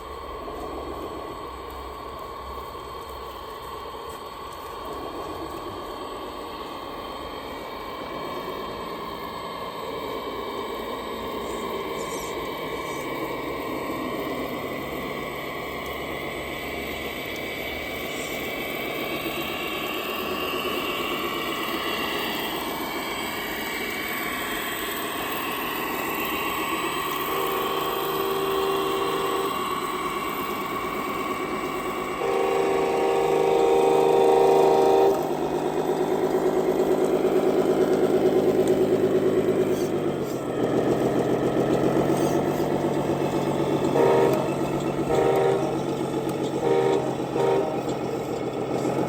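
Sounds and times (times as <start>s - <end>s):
toy truck motor whining: 11.4s - 13.2s, 24.1s - 35.2s.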